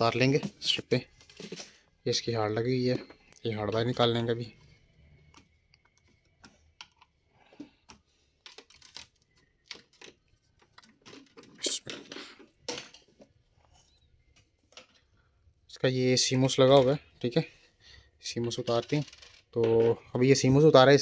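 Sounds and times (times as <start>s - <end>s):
laptop parts clattering: 2.6s - 15.2s, 18.4s - 20.4s
small clicks and taps of laptop parts: 5.2s - 11.2s.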